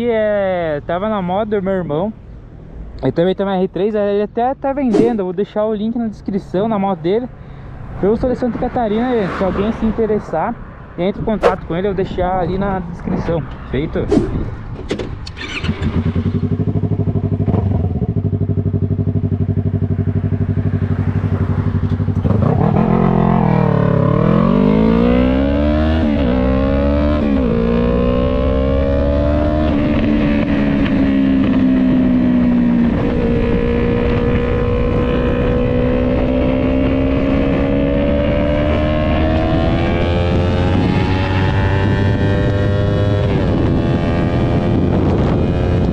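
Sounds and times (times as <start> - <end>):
motorcycle engine revving: 14.1 - 45.9.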